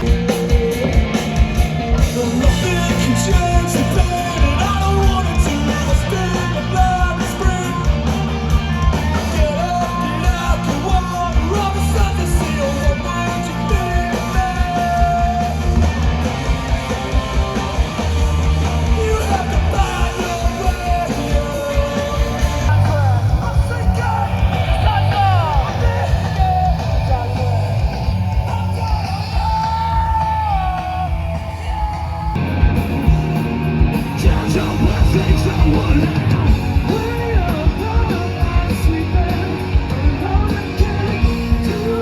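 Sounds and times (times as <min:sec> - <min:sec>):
live rock band: 0:00.0 - 0:42.0
person singing and shouting: 0:18.7 - 0:32.5.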